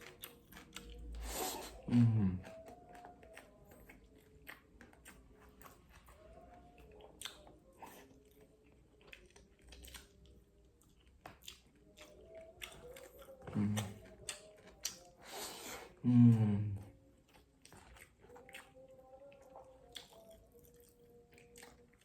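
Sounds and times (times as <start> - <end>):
person chewing food: 0.0 - 22.0
person humming: 1.2 - 3.3, 12.0 - 17.0.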